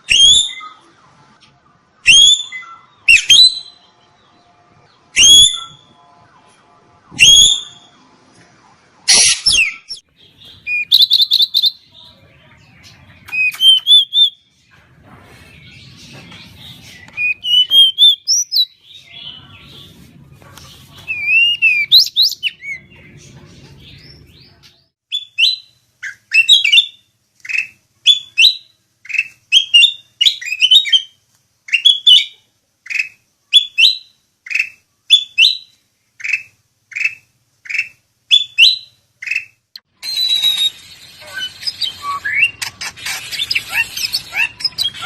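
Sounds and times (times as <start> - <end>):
songbird whistling: 2.0 - 3.9, 5.2 - 5.9, 7.2 - 7.9, 9.1 - 11.8, 13.3 - 14.4, 16.9 - 19.4, 33.0 - 45.0.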